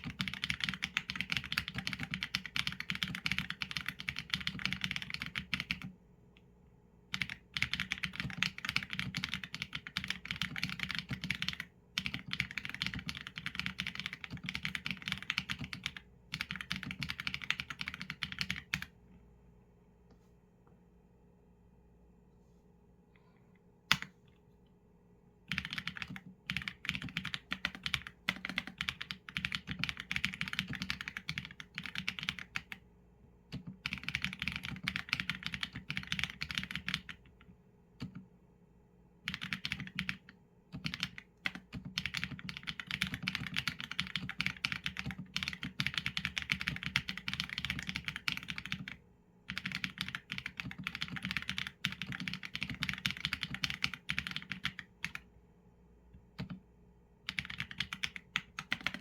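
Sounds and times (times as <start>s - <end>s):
mechanical keyboard typing: 0.0s - 5.9s, 7.1s - 18.9s, 25.5s - 32.8s, 33.5s - 37.4s, 39.3s - 55.3s, 56.3s - 56.6s, 57.3s - 59.0s.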